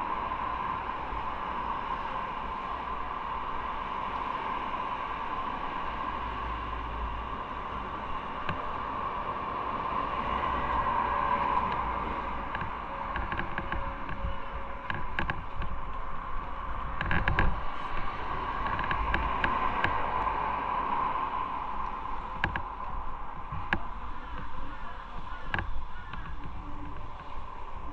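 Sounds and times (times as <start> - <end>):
wind and road noise: 0.0 - 27.9.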